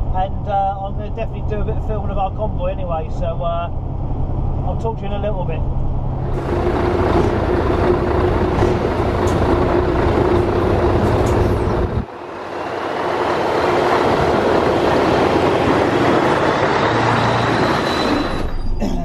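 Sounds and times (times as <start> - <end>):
truck engine and road drone: 0.0 - 19.0
faint rising whine: 5.6 - 18.6.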